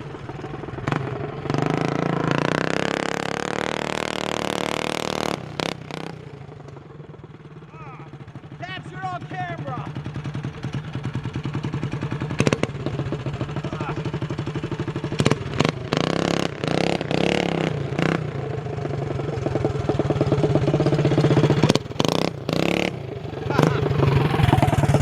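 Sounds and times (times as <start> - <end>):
minibike engine revving: 0.0 - 25.0.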